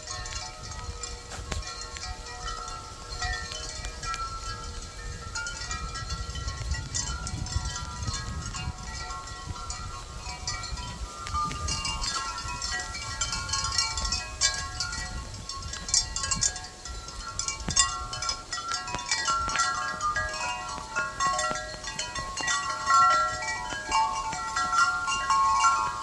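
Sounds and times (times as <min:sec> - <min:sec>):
wind buffeting microphone: 0:00.0 - 0:26.0
wind chimes ringing: 0:00.0 - 0:26.0.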